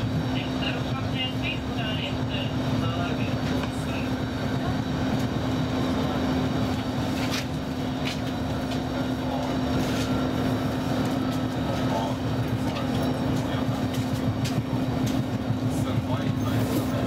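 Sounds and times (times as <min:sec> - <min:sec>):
train cabin rumble: 0:00.0 - 0:17.0.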